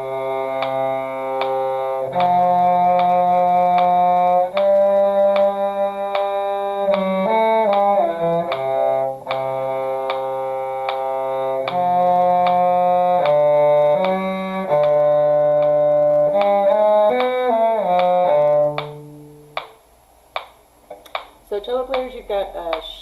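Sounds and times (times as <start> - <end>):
cello playing slow melody: 0.0 - 19.7.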